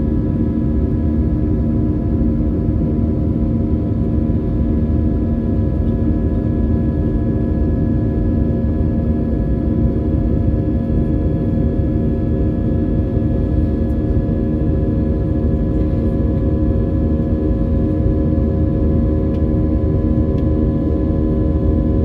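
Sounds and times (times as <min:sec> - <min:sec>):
jet engines droning in cabin: 0:00.0 - 0:22.0.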